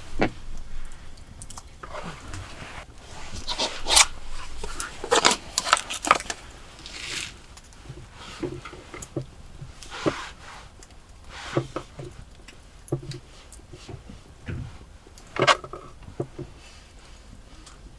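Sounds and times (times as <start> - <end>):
handling clicks rustles and scrapes: 0.0 - 12.2.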